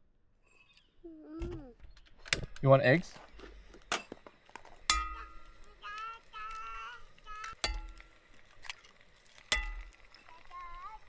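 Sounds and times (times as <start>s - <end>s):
small child vocalizing: 1.0s - 1.8s
metal utensil clinking on metal dish: 4.8s - 5.8s, 7.5s - 8.8s, 9.4s - 10.3s.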